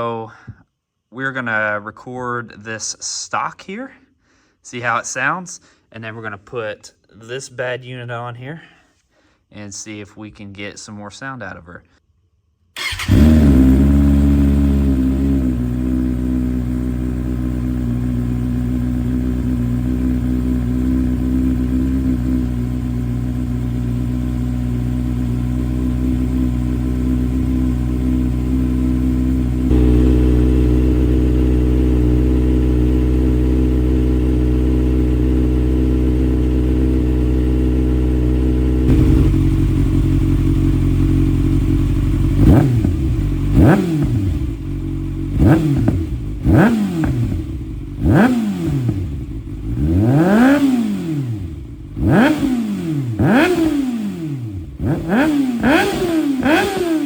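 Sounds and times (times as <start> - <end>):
motorcycle engine idling: 12.8 - 56.8
motorcycle engine revving: 12.8 - 57.0.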